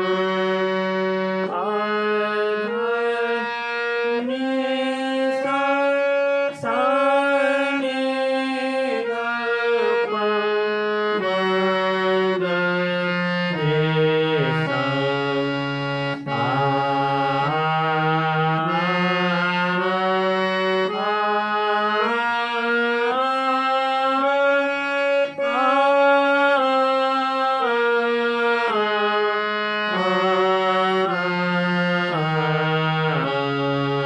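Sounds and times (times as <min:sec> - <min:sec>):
harmonium playing a scale: 0:00.0 - 0:34.0
person singing aa: 0:01.4 - 0:10.8.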